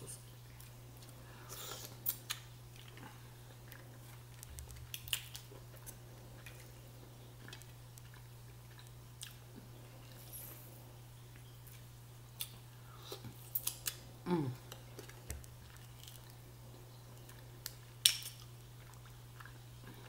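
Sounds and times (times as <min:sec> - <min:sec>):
steady low hum: 0:00.0 - 0:20.0
chewing and mouth noises: 0:00.5 - 0:10.7, 0:11.3 - 0:20.0.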